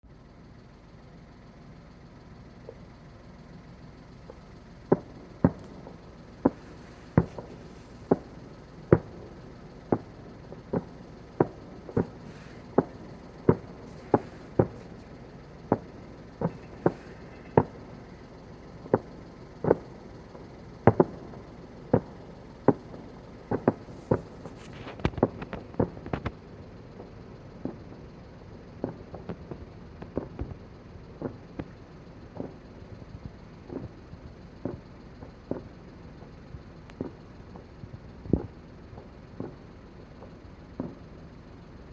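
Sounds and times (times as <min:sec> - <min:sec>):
steady low background noise: 0:00.1 - 0:41.9
fireworks bangs: 0:03.5 - 0:28.1, 0:36.9 - 0:41.1.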